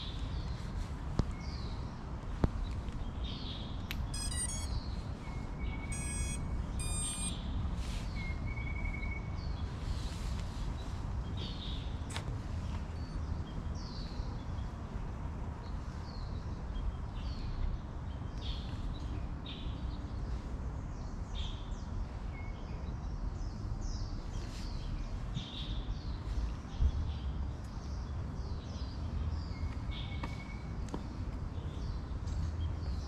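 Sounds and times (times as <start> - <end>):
birds chirping: 1.3 - 9.7.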